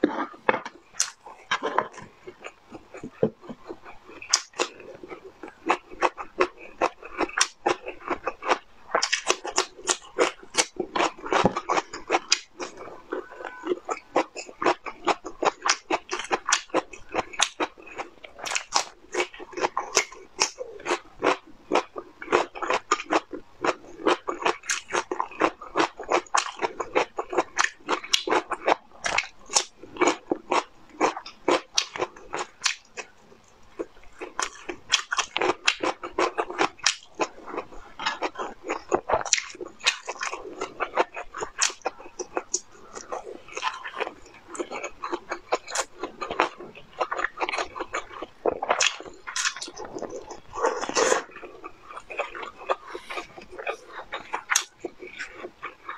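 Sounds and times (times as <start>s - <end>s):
crunchy biting and chewing: 0.0s - 55.9s.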